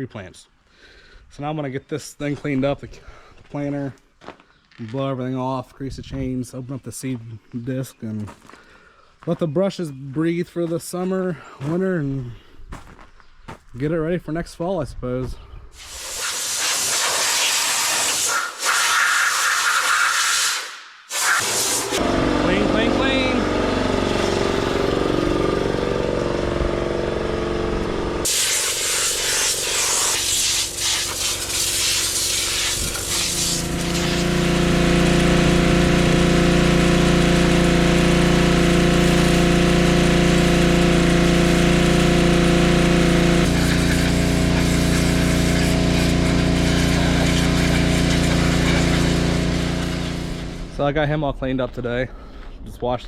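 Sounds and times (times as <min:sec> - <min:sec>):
high-pressure jet hissing: 0:15.8 - 0:22.0, 0:28.2 - 0:50.6
cleaning machine hum: 0:21.1 - 0:50.8
machine drone: 0:21.4 - 0:31.8, 0:32.7 - 0:50.8.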